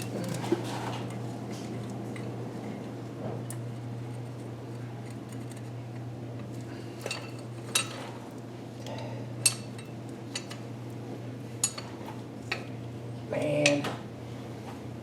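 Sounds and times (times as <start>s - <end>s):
steady low hum: 0.0s - 15.0s
metal hand tools clinking: 9.4s - 10.6s, 11.6s - 11.9s.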